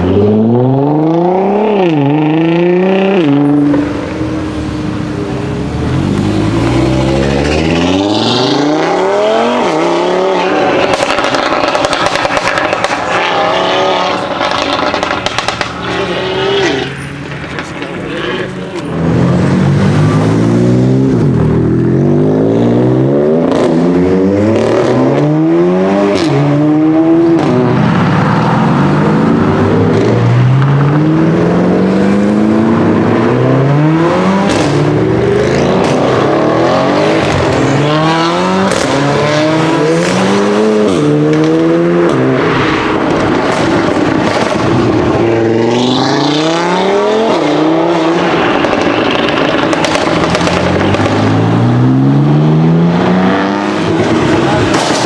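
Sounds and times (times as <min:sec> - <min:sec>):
car engine accelerating: 0:00.0 - 0:55.0
exhaust pops and crackles: 0:10.7 - 0:19.4, 0:34.4 - 0:36.3, 0:37.1 - 0:37.9, 0:38.6 - 0:45.4, 0:48.1 - 0:51.8, 0:53.9 - 0:55.0.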